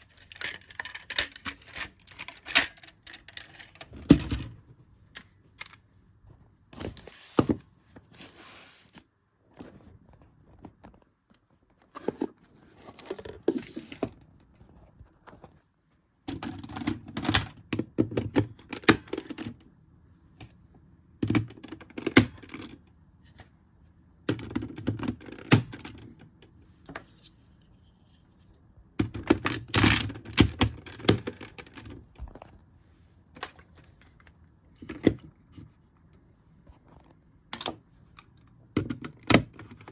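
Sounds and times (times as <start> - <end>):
plastic toy parts clicking: 0.0 - 3.9.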